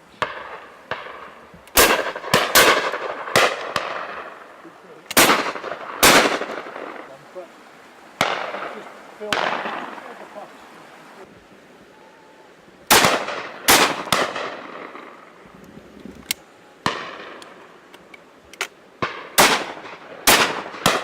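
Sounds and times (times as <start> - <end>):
shotgun shots echoing: 0.2 - 7.2, 8.2 - 10.3, 12.9 - 15.3, 16.8 - 17.7, 19.0 - 21.0.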